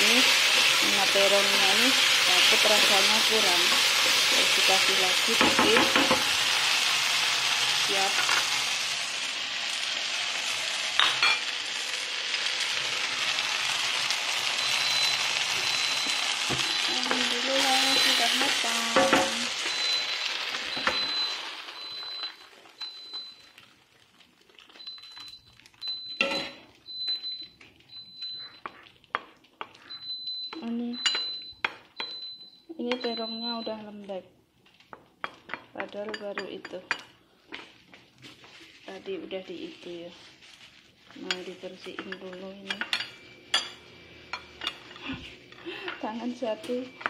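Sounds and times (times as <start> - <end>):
food sizzling in a frying pan: 0.0 - 27.2, 35.3 - 47.0
wooden spatula stirring: 37.5 - 39.0.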